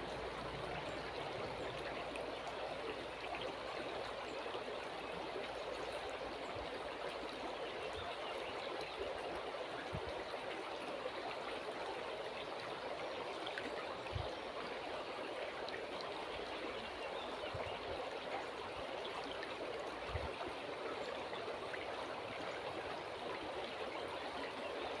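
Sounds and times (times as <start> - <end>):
river water rushing: 0.0 - 5.6.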